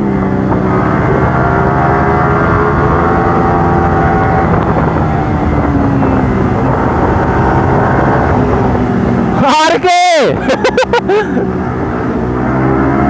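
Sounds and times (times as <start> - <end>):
motorcycle engine running: 0.0 - 9.5
wind rush on microphone: 0.0 - 13.0.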